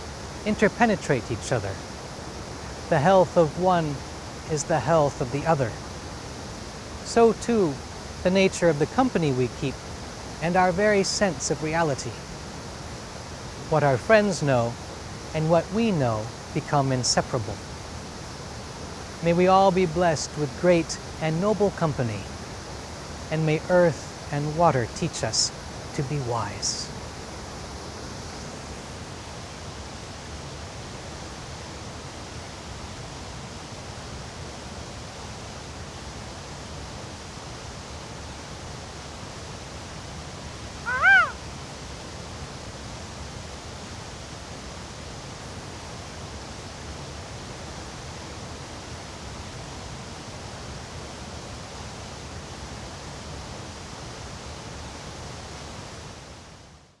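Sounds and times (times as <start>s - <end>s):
animal call: 40.8s - 41.4s.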